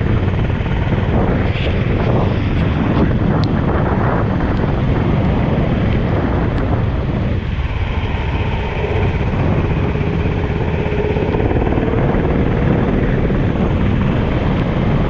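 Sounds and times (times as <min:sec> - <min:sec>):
wind buffeting on microphone: 0:00.0 - 0:15.0
kart engine running under load: 0:04.2 - 0:15.0.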